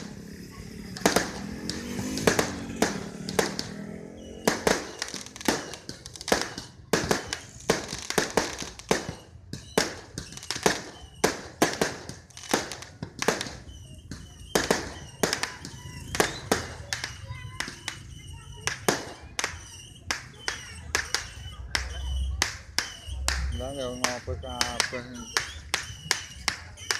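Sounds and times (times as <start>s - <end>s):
fireworks bangs and cracks: 0.0s - 26.9s.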